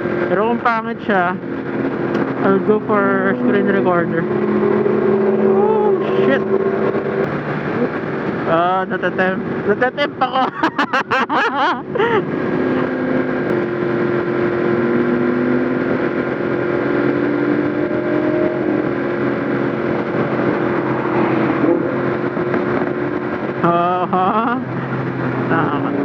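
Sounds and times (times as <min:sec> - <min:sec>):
motorcycle engine cruising: 0:00.0 - 0:26.0
rush of wind noise: 0:01.2 - 0:23.8
person talking: 0:02.4 - 0:04.3, 0:05.4 - 0:06.6, 0:08.5 - 0:10.6.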